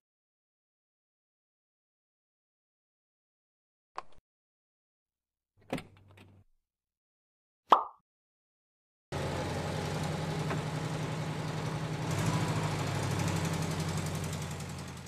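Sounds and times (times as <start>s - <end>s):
car engine running: 9.1s - 15.0s.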